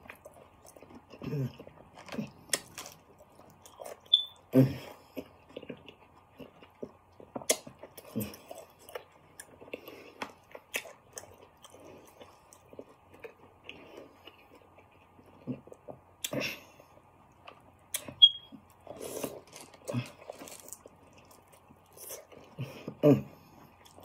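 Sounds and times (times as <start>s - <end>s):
chewing and smacking: 0.0s - 16.4s, 17.3s - 23.0s, 23.6s - 24.0s
short high beep: 18.2s - 18.5s.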